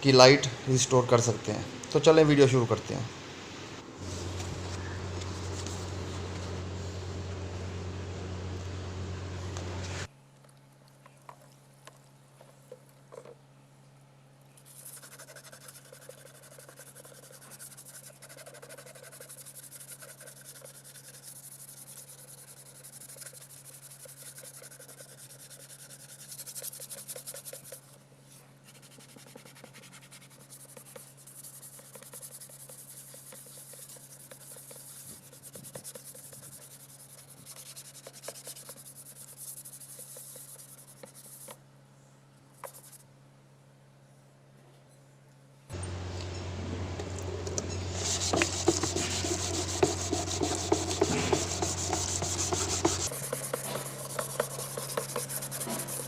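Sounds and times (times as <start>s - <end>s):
sandpaper rasping on plastic: 14.7s - 27.9s, 28.7s - 41.6s, 47.7s - 56.0s.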